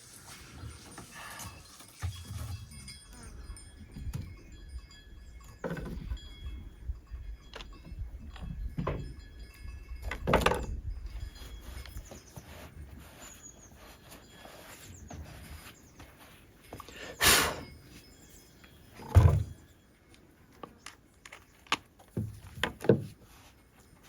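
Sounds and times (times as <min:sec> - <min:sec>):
faint metallic ringing: 0:00.7 - 0:20.8
knocks and clanks: 0:07.5 - 0:09.3, 0:10.0 - 0:10.8, 0:19.0 - 0:19.6.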